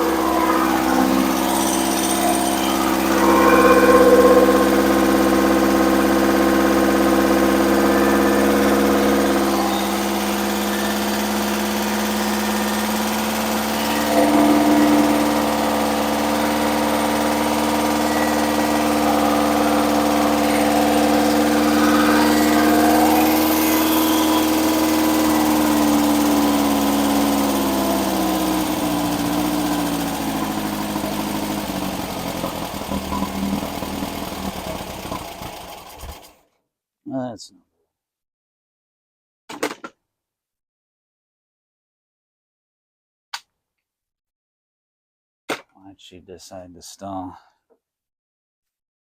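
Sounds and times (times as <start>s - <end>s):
engine running unevenly and stalling: 0.0s - 36.4s.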